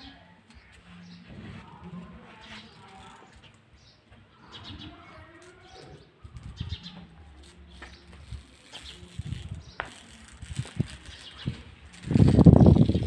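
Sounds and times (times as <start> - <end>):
kite bow humming in wind: 8.2 - 13.0.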